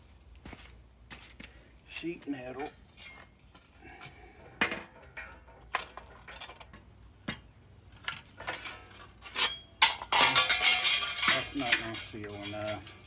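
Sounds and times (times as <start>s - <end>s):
sheet metal clinking: 8.4s - 13.0s.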